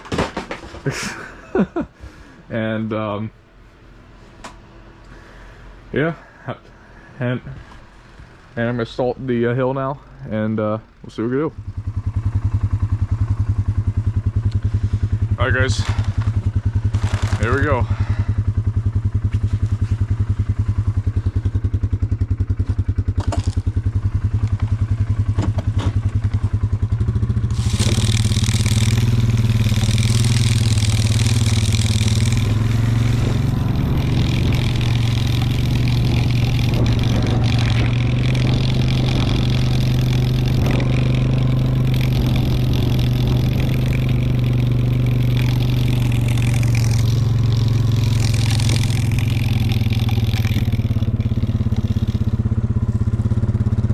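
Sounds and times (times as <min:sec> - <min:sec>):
quad engine running: 0:00.0 - 0:01.8, 0:07.2 - 0:53.9
rattling hiss: 0:26.1 - 0:53.2.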